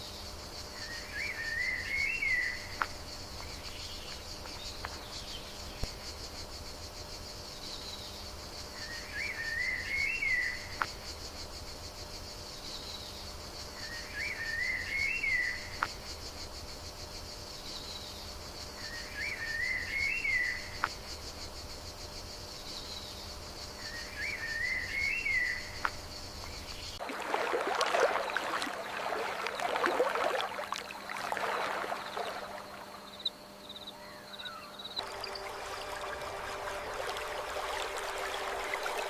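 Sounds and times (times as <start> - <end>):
high insect drone: 0.0 - 39.0.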